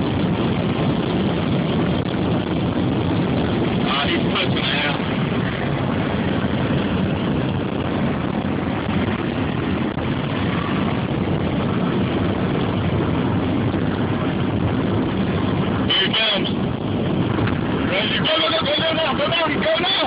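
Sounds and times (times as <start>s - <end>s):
car engine at highway speed: 0.0s - 20.0s
road noise inside car: 0.0s - 20.0s
wind noise: 0.0s - 20.0s.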